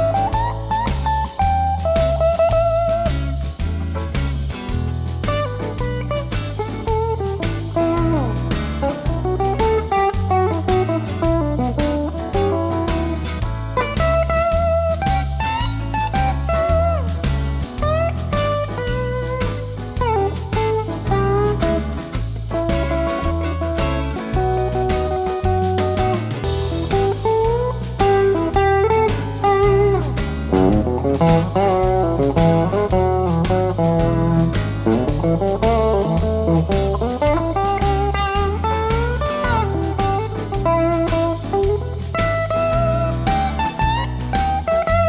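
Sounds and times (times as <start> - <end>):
bass: 0.0 - 45.0
blues shuffle backing track: 0.0 - 45.0
clean electric guitar blues lead: 0.0 - 45.0
steady drum beats: 0.0 - 45.0.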